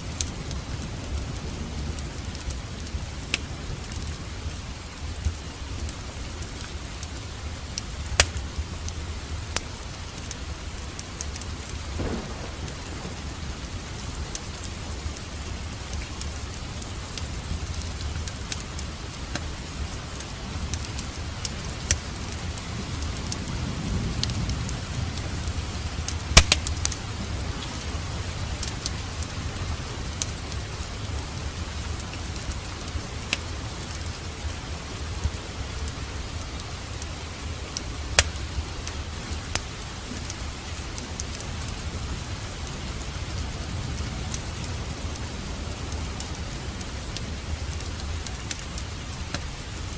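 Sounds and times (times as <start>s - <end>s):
steady rain: 0.0s - 49.9s
fireplace pops and crackles: 7.8s - 8.5s, 11.0s - 13.4s, 21.8s - 22.1s, 26.1s - 27.0s, 38.1s - 38.6s
distant thunder rumble: 11.8s - 16.6s.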